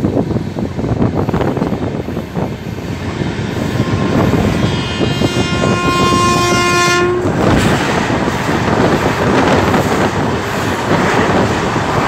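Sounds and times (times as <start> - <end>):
train rumbling at speed: 0.0 - 12.0
train horn long blast: 3.0 - 8.2.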